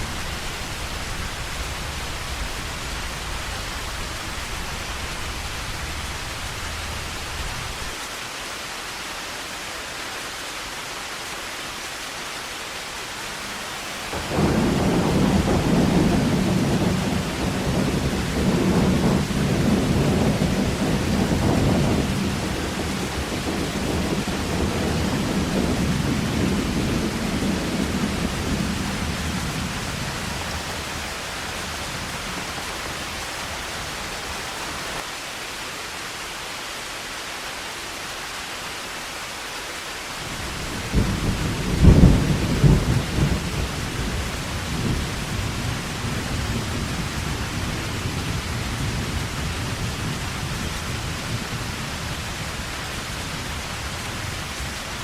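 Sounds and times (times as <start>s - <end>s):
thunder rumbling: 0.0s - 7.9s, 14.0s - 35.0s, 40.2s - 55.0s
heavy rain pouring: 0.0s - 55.0s
loud thunder crack: 14.1s - 32.6s, 40.3s - 51.6s.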